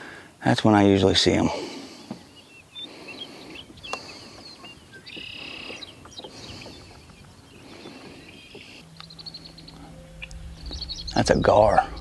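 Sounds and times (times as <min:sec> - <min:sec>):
birds chirping: 0:00.0 - 0:12.0
low outdoor rumble: 0:05.2 - 0:12.0.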